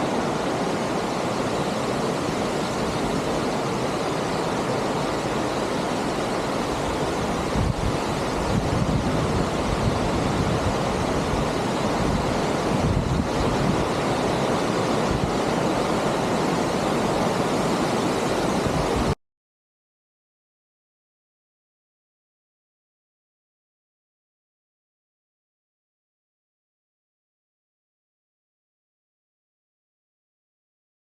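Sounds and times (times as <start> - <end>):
waterfall roaring: 0.0 - 19.2
wind buffeting microphone: 6.2 - 19.2.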